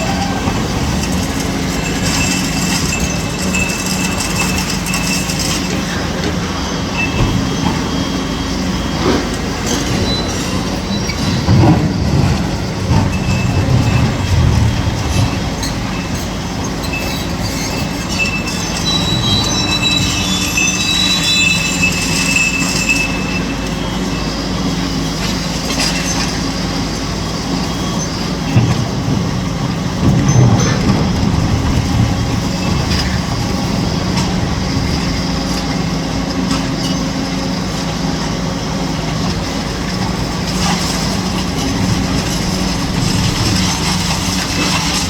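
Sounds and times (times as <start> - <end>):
high-pitched metallic squeals: 0.0 - 28.6
excavator diesel engine running: 0.0 - 45.0
metal knocks and clanks: 28.5 - 37.1.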